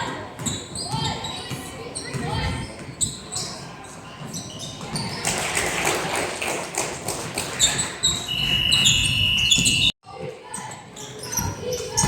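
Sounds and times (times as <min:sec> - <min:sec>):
sneaker squeaks on court floor: 0:00.4 - 0:05.4, 0:07.6 - 0:12.0.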